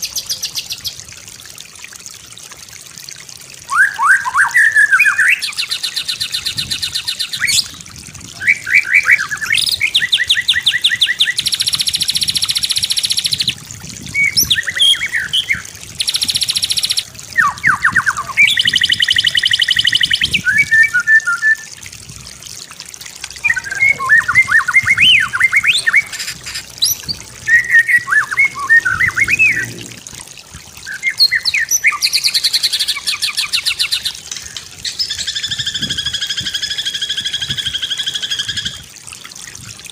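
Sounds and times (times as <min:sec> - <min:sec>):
bird singing varied song: 0:08.3 - 0:13.6, 0:14.2 - 0:21.7, 0:23.4 - 0:29.8, 0:30.8 - 0:38.8.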